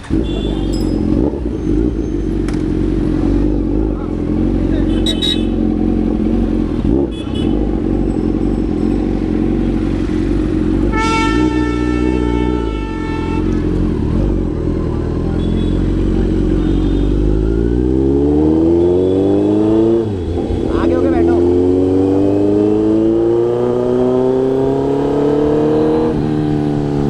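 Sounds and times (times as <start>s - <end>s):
vehicle horn: 0.0s - 1.0s, 4.8s - 5.7s, 6.9s - 7.8s, 10.8s - 14.1s, 15.3s - 17.4s
motorcycle engine running: 0.0s - 27.0s.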